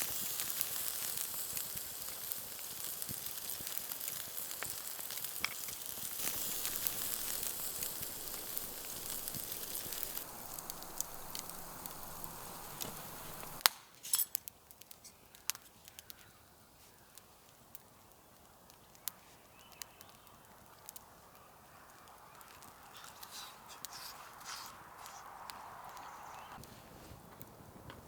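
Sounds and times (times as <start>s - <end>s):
food sizzling over campfire: 0.0s - 27.9s
light clicks and clinks: 5.4s - 14.5s.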